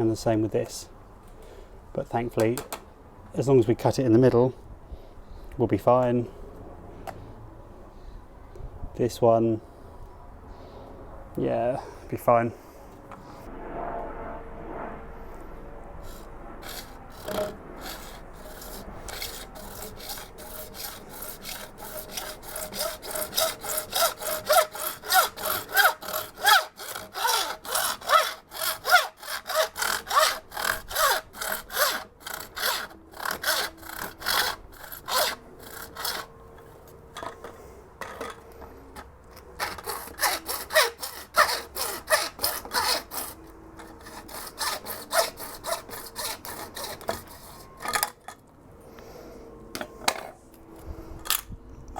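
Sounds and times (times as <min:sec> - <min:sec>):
saw cutting plastic pipe: 0:16.0 - 0:36.3, 0:39.4 - 0:48.1.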